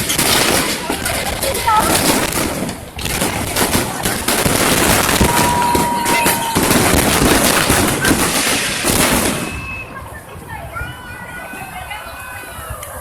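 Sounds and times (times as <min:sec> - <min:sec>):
fireworks crackling: 0:00.0 - 0:12.4
firework whistle: 0:04.9 - 0:10.2.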